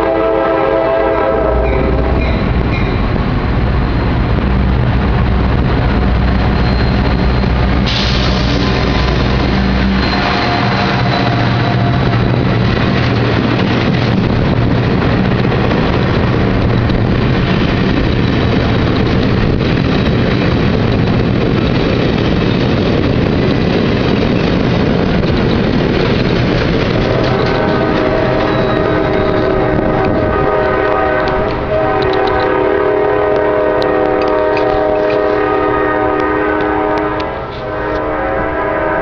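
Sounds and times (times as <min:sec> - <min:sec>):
train horn chord: 0:00.0 - 0:02.2, 0:27.0 - 0:39.0
diesel train rumbling: 0:00.0 - 0:39.0.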